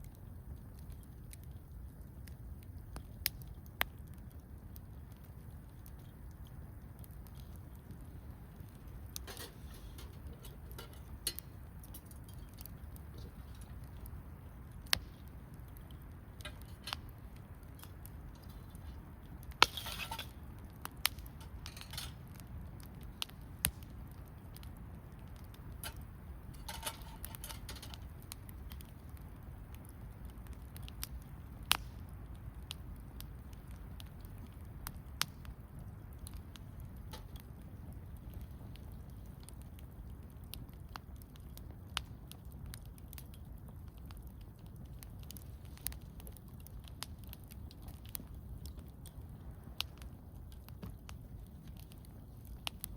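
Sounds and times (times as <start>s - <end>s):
campfire crackling: 0.0s - 52.9s
sharp fire pops: 0.0s - 52.9s
fire hissing: 0.1s - 42.2s.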